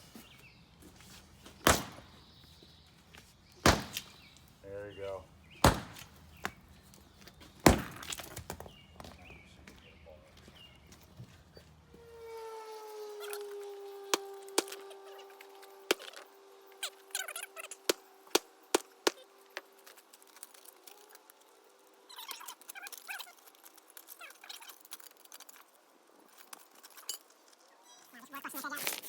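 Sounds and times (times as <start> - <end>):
concrete saw whine winding down: 11.8 - 19.8.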